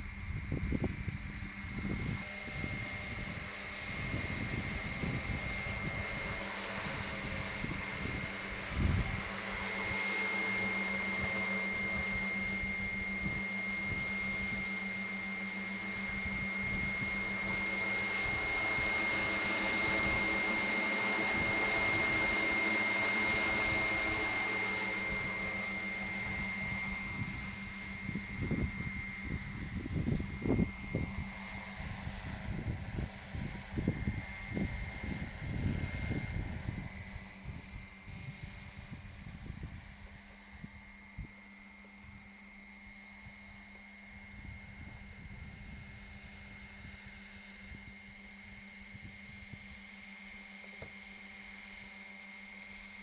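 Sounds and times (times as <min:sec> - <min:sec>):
wind buffeting microphone: 0:00.0 - 0:10.0, 0:26.2 - 0:41.3
model helicopter rotor whine: 0:00.0 - 0:53.0.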